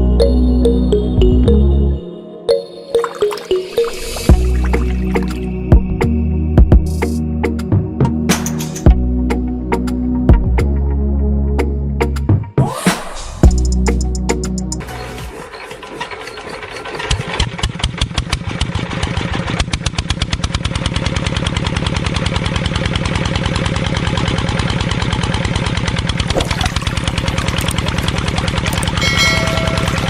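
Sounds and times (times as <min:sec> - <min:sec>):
small tractor engine running: 0:14.8 - 0:30.0.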